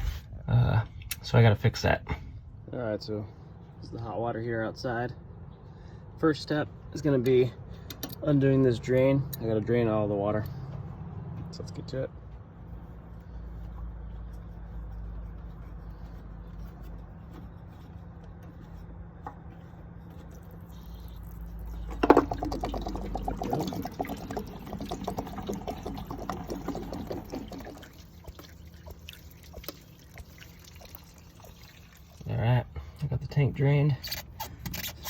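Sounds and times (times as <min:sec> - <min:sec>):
low steady hum: 0:00.0 - 0:34.4
water gushing and splashing: 0:20.5 - 0:32.3.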